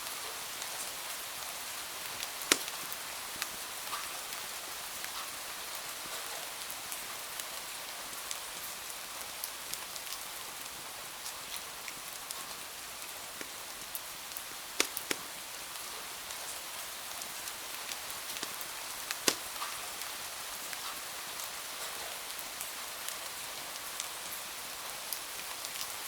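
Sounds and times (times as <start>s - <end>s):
steady rain hiss: 0.0s - 26.0s
wood fire crackling and popping: 2.2s - 3.6s, 13.4s - 15.5s, 18.2s - 19.9s.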